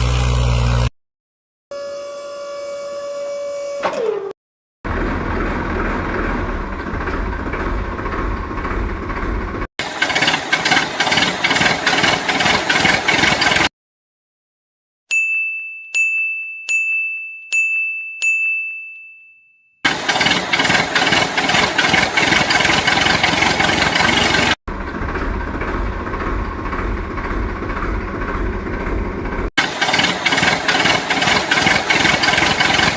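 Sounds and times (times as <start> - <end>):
machine running: 5.0 - 13.7, 19.9 - 32.9
ringing dings: 15.1 - 19.9.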